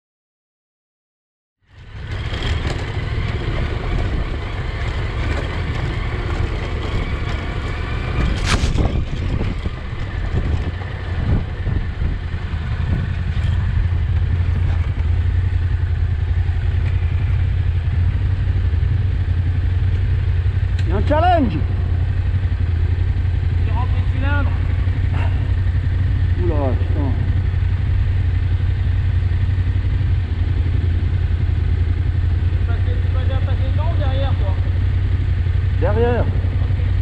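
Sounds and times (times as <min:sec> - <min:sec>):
motorcycle engine running: 0:01.6 - 0:37.0
tyres on rough gravel: 0:02.0 - 0:15.8.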